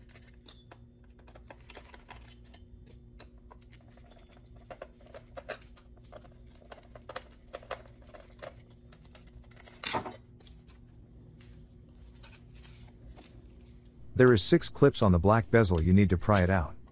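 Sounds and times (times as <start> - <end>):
low hum: 13.8 - 16.9.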